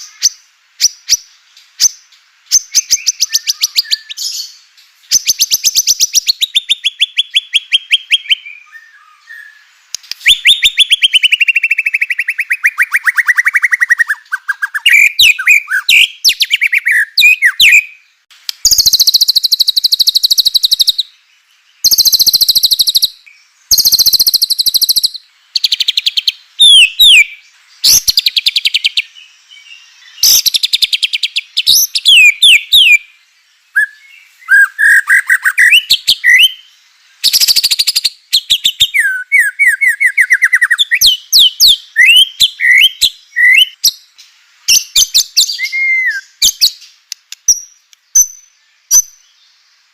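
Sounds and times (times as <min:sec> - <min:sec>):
bird whistled phrases: 0:01.8 - 0:17.9, 0:21.8 - 0:29.1, 0:30.1 - 0:33.0, 0:33.8 - 0:36.6, 0:37.2 - 0:43.9, 0:44.7 - 0:46.8.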